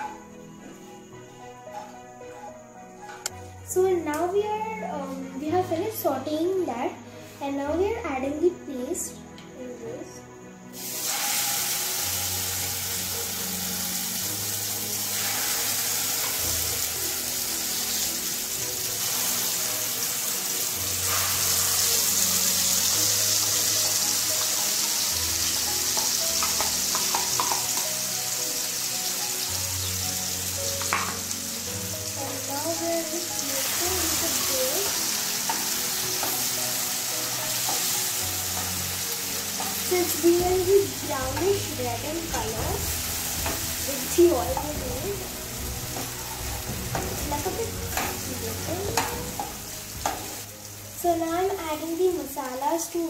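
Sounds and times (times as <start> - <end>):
paste sizzling in hot oil: 10.7 - 53.0
spatula stirring in a pan: 15.0 - 16.5, 33.6 - 39.9.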